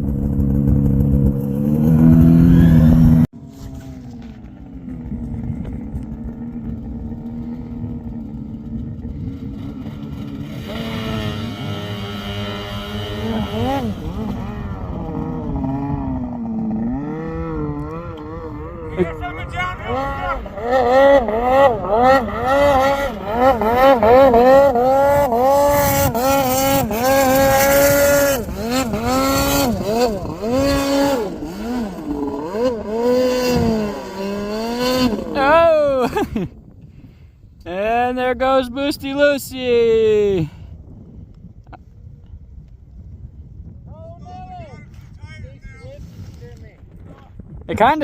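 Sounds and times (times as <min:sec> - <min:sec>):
snowmobile engine revving: 0:00.0 - 0:36.5.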